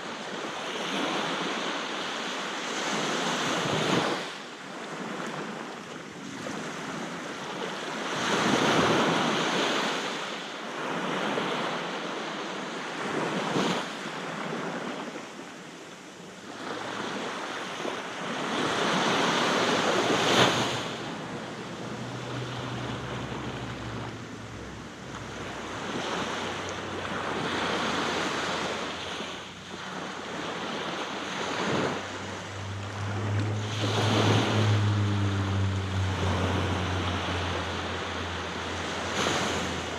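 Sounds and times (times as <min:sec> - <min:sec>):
sea waves breaking on beach: 0:00.0 - 0:39.9
wind on microphone: 0:18.3 - 0:39.9
low steady hum: 0:19.8 - 0:39.9.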